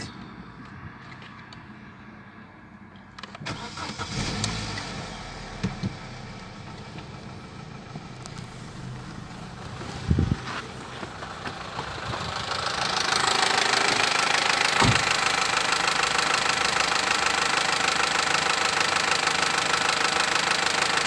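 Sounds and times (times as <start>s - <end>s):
car engine fast idle: 3.5s - 21.0s
short thump: 14.8s - 15.1s.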